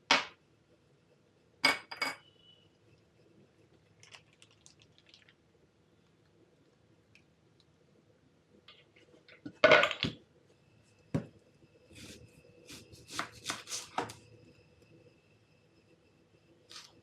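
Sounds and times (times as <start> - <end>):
faint high whine: 0.5 - 4.0, 10.2 - 17.0.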